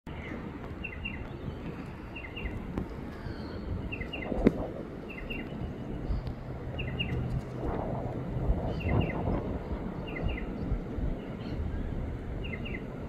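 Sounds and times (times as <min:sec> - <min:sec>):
bird chirping call: 0:00.1 - 0:07.3, 0:10.0 - 0:12.9
outdoor background rumble: 0:00.1 - 0:13.0.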